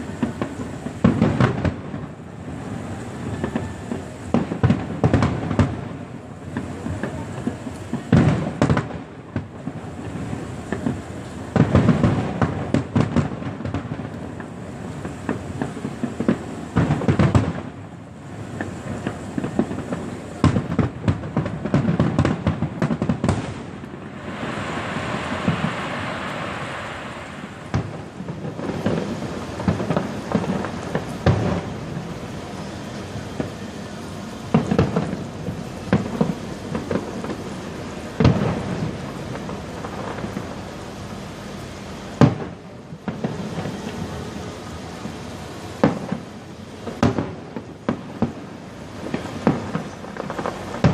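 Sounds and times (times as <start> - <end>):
crackling firework shells: 0.0 - 50.9
fireworks bangs and booms: 0.0 - 50.9.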